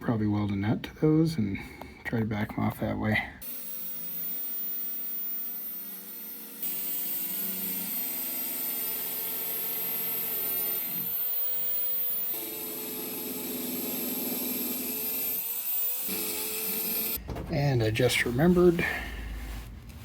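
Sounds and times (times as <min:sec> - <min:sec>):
angle grinder grinding screws: 0:03.4 - 0:17.2.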